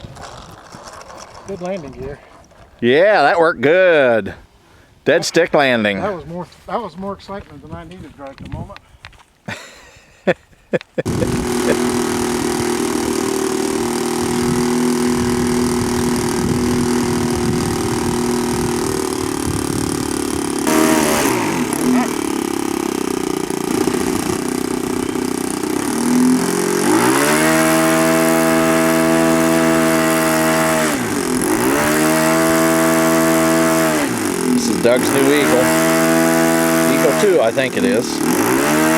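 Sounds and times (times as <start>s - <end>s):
model airplane engine revving: 11.0s - 38.9s.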